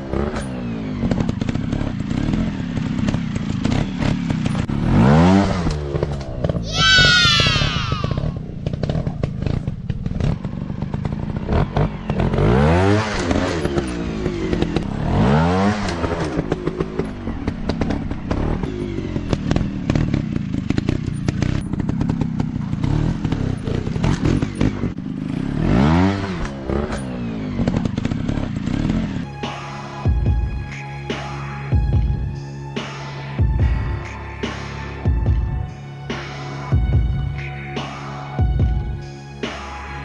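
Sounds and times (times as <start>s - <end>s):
dirt bike engines revving: 0.1s - 29.2s.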